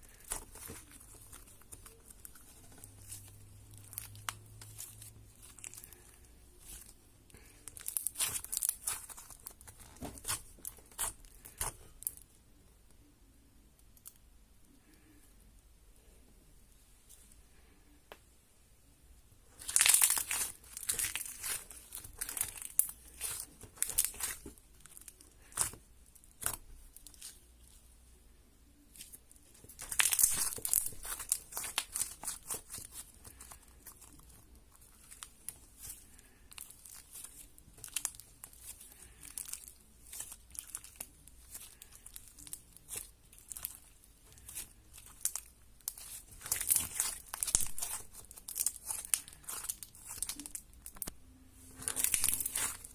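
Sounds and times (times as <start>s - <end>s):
slime crackling and clicking: 36.5s - 51.2s, 51.8s - 52.8s.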